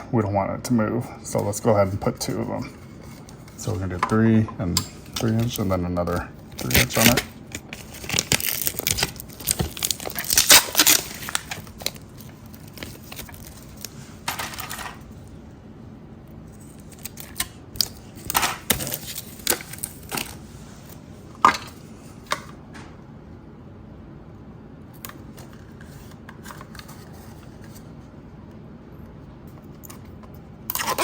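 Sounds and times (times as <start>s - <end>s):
tape clicks and crinkling rustles: 3.0s - 15.1s, 16.6s - 22.6s
tape tearing: 6.6s - 13.9s, 30.7s - 31.0s.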